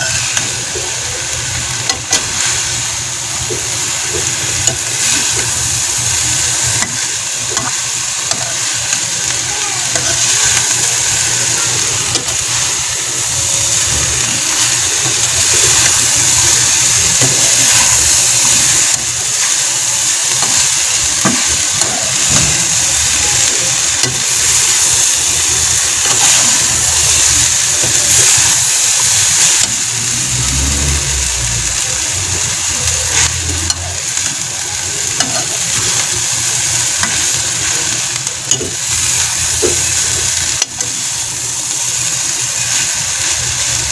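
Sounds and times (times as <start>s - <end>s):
meat and vegetables sizzling in pan: 0.0s - 43.9s
metal spatula scrapes and ticks: 6.4s - 12.6s, 32.8s - 34.4s, 35.0s - 41.0s
low hum: 30.0s - 33.9s.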